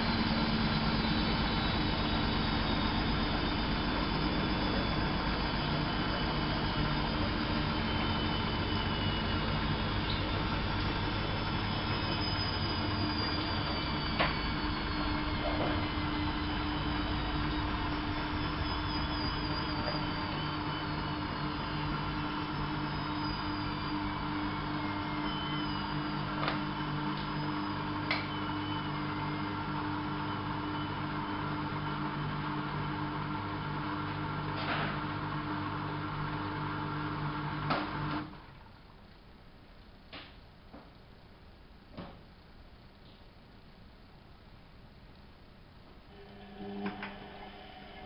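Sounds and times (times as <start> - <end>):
motor whine falling in pitch: 0.0 - 36.6
washing machine running: 0.0 - 38.9, 46.0 - 48.0.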